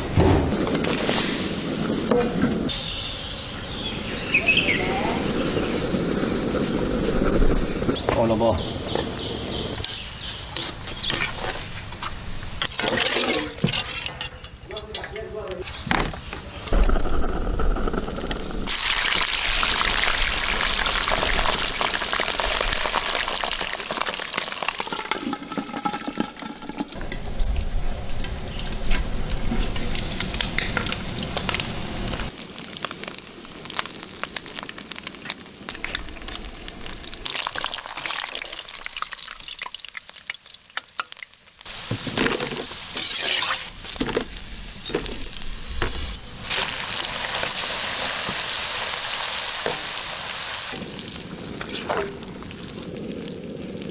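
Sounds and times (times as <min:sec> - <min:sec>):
chicken feet sizzling in hot oil: 0:18.7 - 0:53.9.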